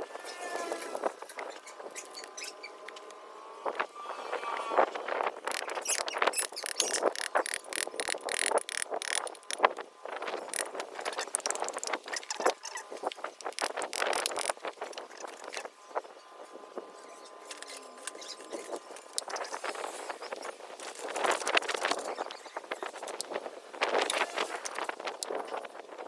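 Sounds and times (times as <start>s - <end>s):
metallic clicking and knocking: 5.5s - 9.7s, 13.5s - 14.5s.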